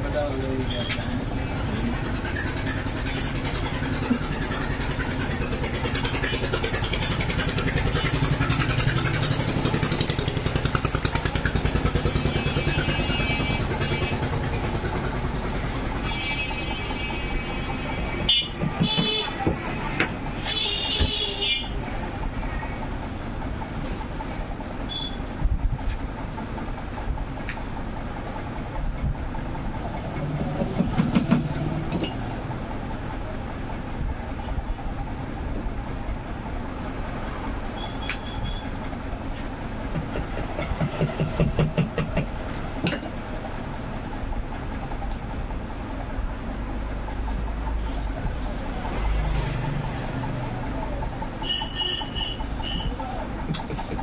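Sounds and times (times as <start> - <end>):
engines and traffic rumble: 0.0 - 54.0
sharp clicks and taps: 39.3 - 43.2, 53.4 - 54.0.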